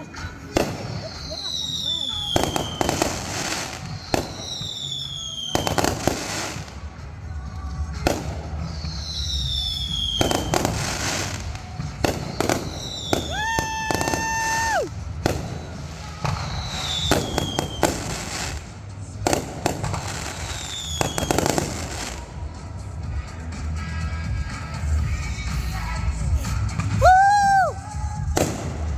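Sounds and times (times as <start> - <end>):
fireworks bangs and crackles: 0.0 - 28.9
fireworks whistles falling in pitch: 0.6 - 6.5, 8.8 - 11.4, 12.2 - 14.9, 16.2 - 18.4, 20.3 - 21.6.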